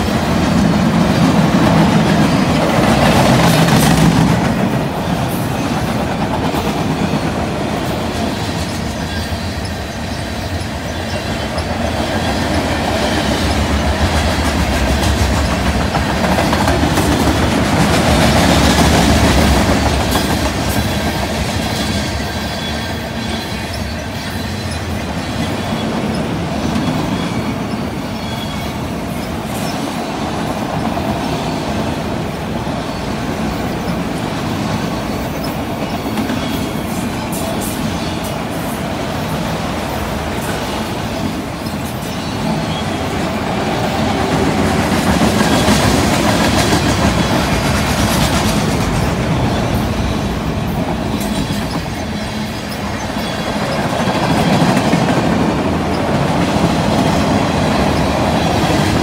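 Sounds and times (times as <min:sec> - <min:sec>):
clickety-clack over rail joints: 0:00.0 - 0:59.0
freight train wheels rumbling: 0:00.0 - 0:59.0.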